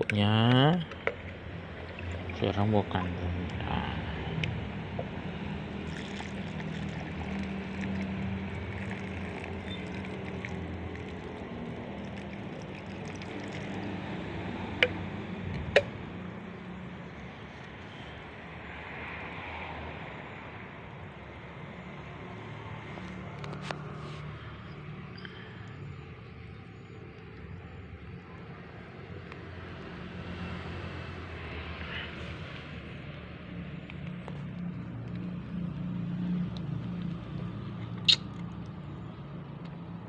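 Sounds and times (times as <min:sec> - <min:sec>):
low engine hum: 0:00.0 - 0:40.0.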